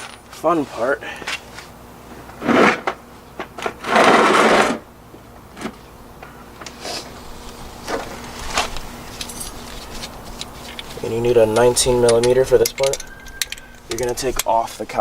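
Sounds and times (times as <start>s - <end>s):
metal hand tools clinking: 9.1s - 9.8s, 10.6s - 15.0s.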